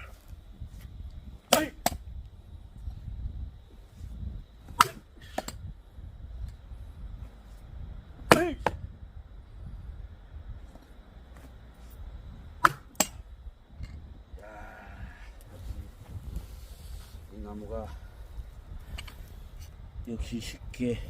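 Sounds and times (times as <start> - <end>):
axe striking log: 1.5 - 2.0, 4.7 - 5.6, 8.2 - 8.8, 12.6 - 13.2.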